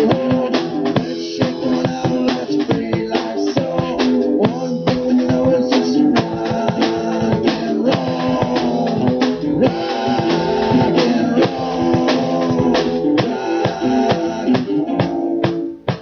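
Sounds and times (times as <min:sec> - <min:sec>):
drum kit beat: 0:00.0 - 0:16.0
guitars playing: 0:00.0 - 0:16.0.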